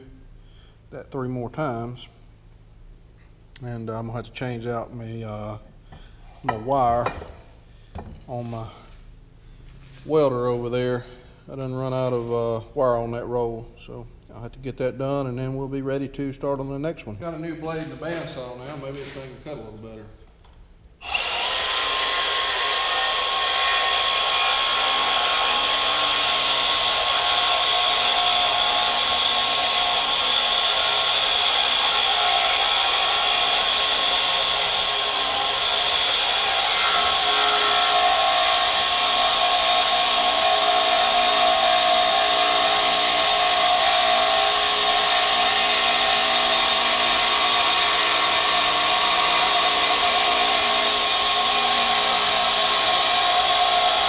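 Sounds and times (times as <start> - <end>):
bandsaw whining cutting steel: 21.0 - 54.0.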